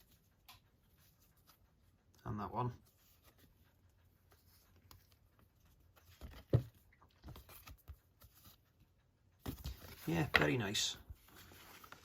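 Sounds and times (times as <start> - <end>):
photo cards rustling: 4.3 - 8.8, 9.4 - 12.0.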